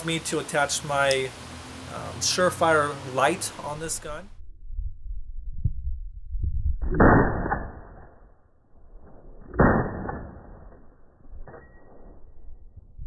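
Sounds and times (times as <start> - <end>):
gunshots: 6.9 - 8.0, 9.5 - 10.6.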